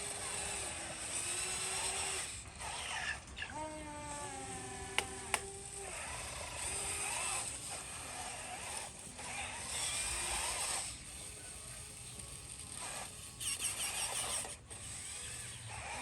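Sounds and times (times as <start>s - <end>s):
small electric motors whining: 0.0s - 16.0s
sharp clicks: 4.9s - 5.5s.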